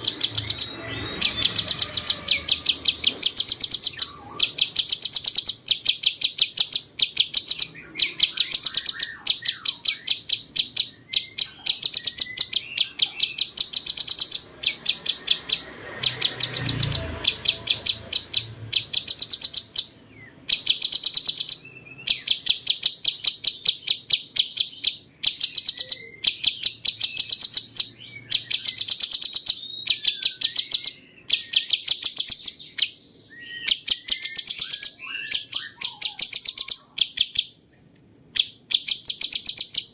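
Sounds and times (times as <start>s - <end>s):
songbird singing sharp high notes: 0.0s - 39.9s.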